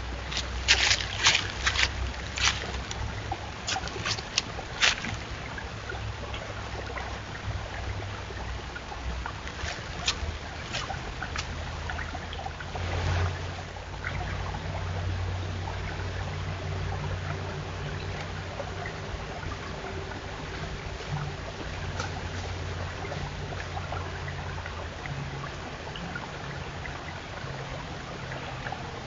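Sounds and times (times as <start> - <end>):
steady low rumble: 0.0 - 29.0
deer crunching apples: 0.3 - 5.2, 9.5 - 11.5.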